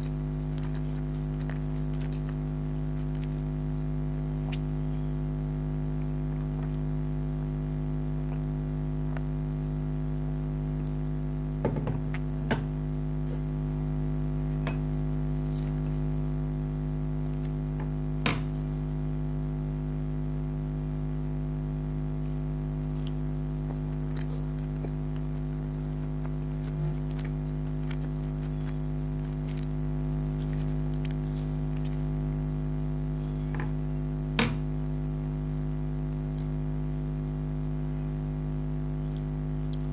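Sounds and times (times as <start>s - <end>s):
mouth clicks and bites: 0.0s - 5.1s, 22.2s - 33.9s, 39.0s - 39.9s
steady low hum: 0.0s - 39.9s.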